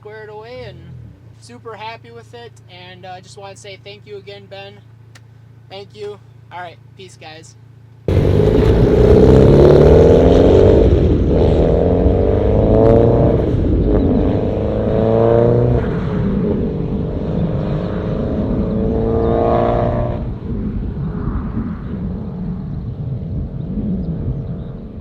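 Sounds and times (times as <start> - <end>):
car engine accelerating hard: 8.1 - 20.9.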